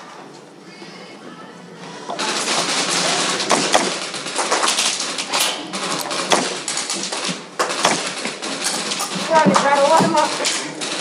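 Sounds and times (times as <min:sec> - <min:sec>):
rapid gunfire: 0:02.2 - 0:11.0.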